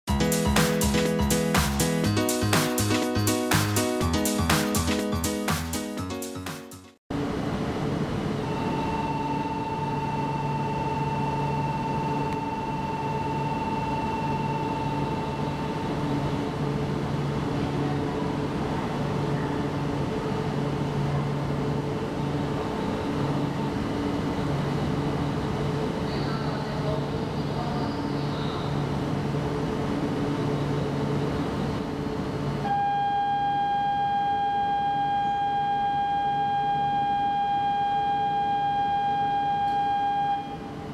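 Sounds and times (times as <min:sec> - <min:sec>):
constant high tone: 0:08.4 - 0:16.5, 0:32.7 - 0:40.9.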